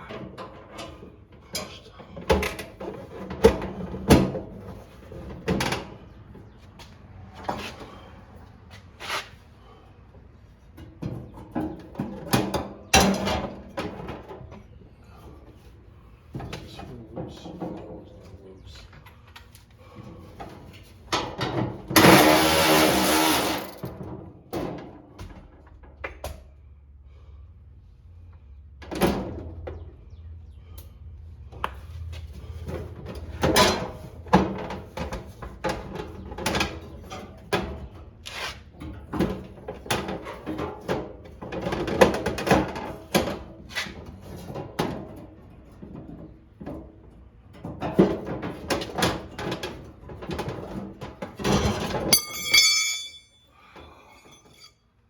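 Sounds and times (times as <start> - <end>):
hand tools clicking and rattling: 52.0 - 53.4.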